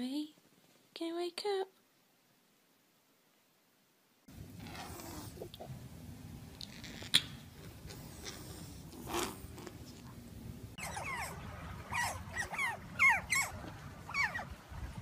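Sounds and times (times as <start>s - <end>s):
otters squeaky chirps: 10.8s - 14.5s.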